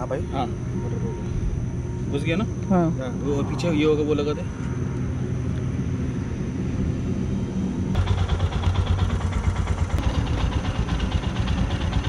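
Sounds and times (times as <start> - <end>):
low engine hum: 0.0 - 12.0
motorcycle engine idling: 7.9 - 12.0.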